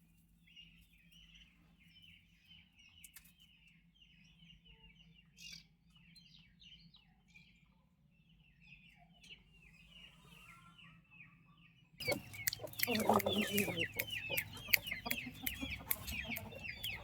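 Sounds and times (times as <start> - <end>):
turkey poults peeping: 12.0 - 17.0.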